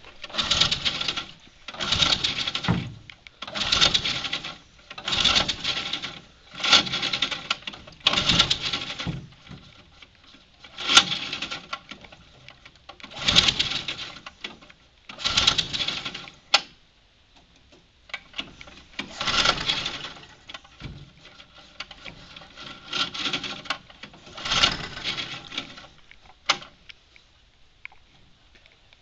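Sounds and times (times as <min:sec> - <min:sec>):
pull-starter whirring and rattling: 0:00.0 - 0:16.7, 0:18.2 - 0:26.8.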